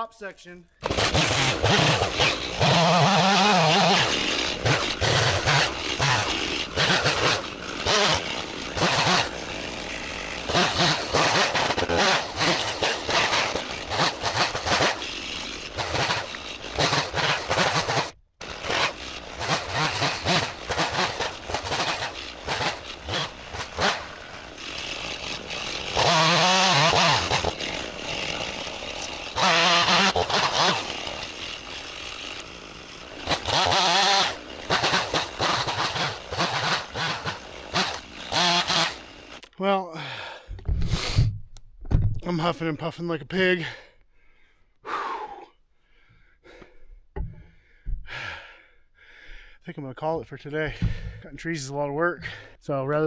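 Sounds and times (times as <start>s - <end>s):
chainsaw cutting log: 0.8s - 39.6s, 50.8s - 51.2s.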